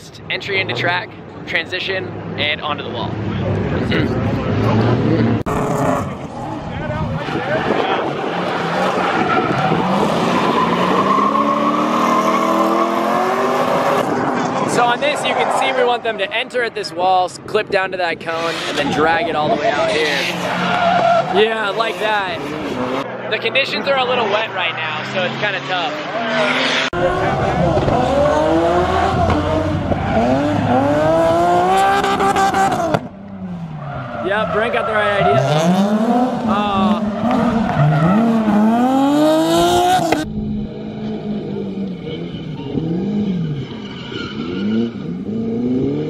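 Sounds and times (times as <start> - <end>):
car engine revving hard: 7.7 - 14.6, 25.0 - 33.6, 34.3 - 40.2.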